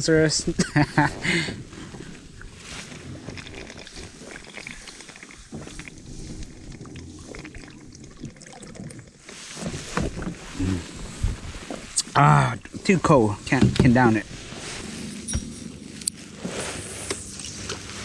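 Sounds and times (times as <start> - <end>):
man gulping beer: 0.6 - 12.9.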